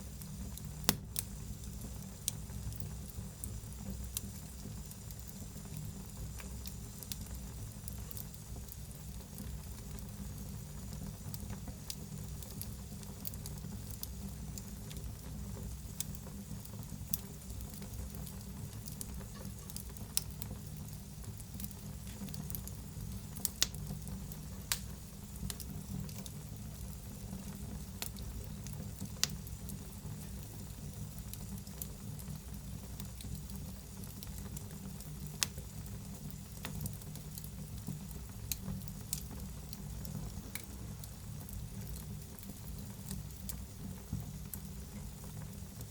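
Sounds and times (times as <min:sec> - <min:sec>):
fire crackling and popping: 0:00.0 - 0:45.9
wood fire rumbling and hissing: 0:00.0 - 0:45.9.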